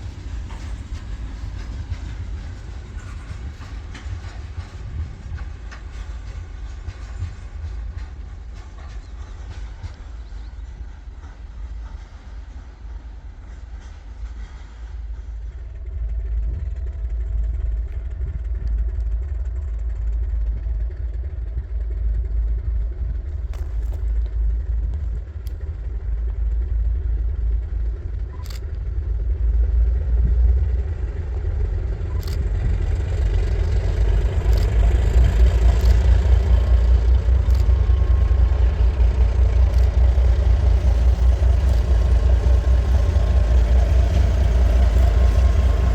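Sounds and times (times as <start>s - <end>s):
train rumbling: 0.0s - 45.9s
sharp clicks: 37.4s - 38.2s.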